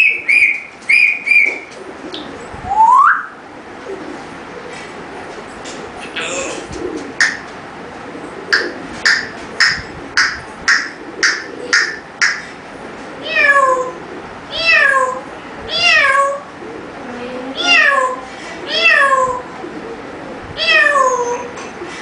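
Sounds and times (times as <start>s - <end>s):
short sharp calls: 8.5s - 12.6s
long falling meows: 13.2s - 16.4s, 17.6s - 19.5s, 20.6s - 21.5s.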